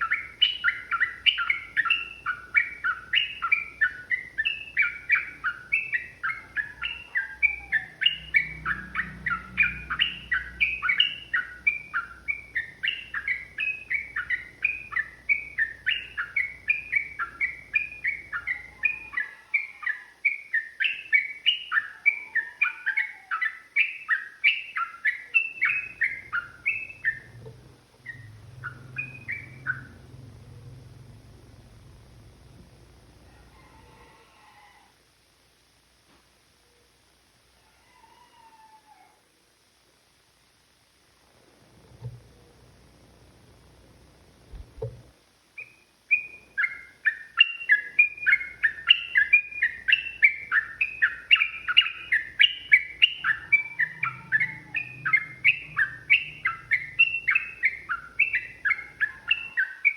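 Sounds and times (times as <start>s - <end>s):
bulbul chirping song: 0.0s - 33.2s, 45.5s - 59.9s.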